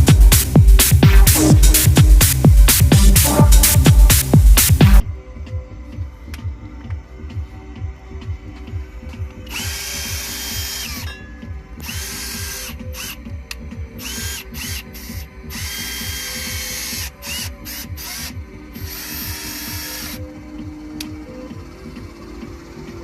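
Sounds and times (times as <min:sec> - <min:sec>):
background music with steady beat: 0:00.0 - 0:23.0
small power tool motor whining: 0:09.5 - 0:11.1, 0:11.8 - 0:13.2, 0:14.0 - 0:20.3.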